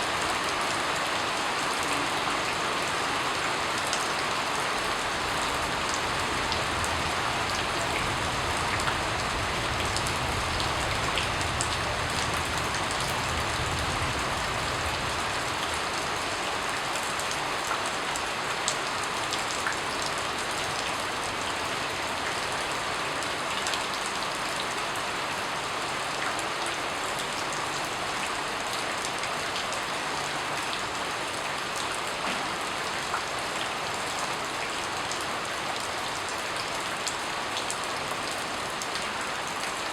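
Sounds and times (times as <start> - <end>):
rain falling on a surface: 0.0 - 39.9.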